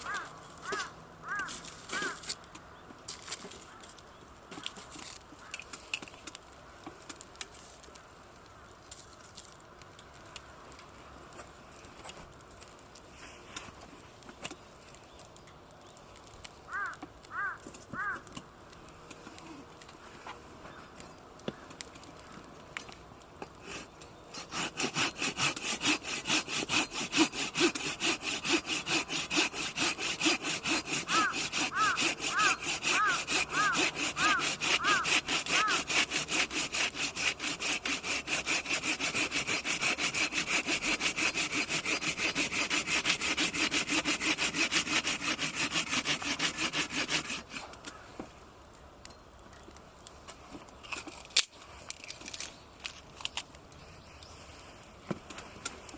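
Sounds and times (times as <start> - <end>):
hand saw cutting wood: 0.1 - 2.4, 23.6 - 47.9.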